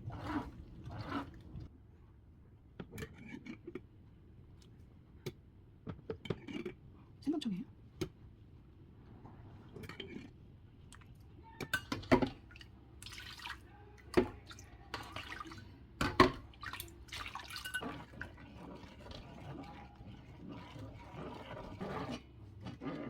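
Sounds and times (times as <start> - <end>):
water splashing and dripping: 12.4 - 13.6, 16.5 - 17.8.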